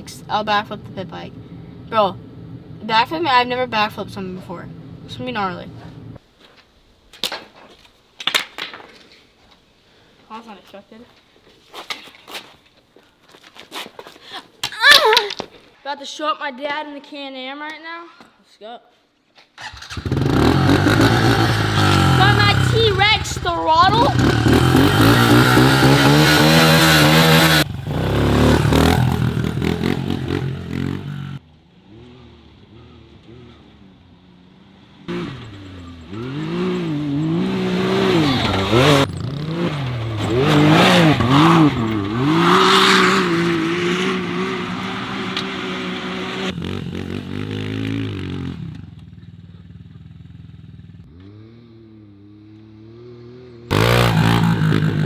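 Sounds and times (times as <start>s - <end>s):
engines revving: 0.0s - 6.2s, 19.6s - 48.8s, 51.0s - 55.0s
loud rushing riding noise: 19.7s - 31.4s, 35.1s - 48.7s, 53.7s - 55.0s.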